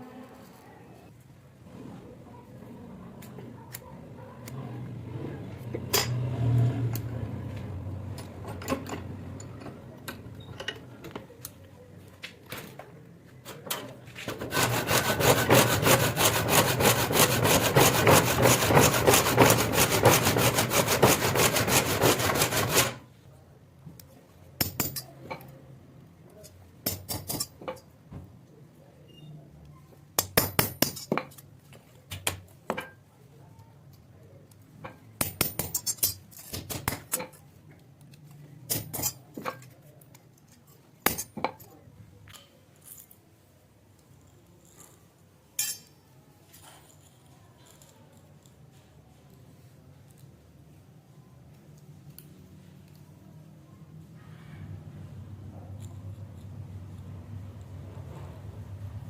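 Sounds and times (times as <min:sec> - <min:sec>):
hand tool scraping: 0:14.1 - 0:23.0.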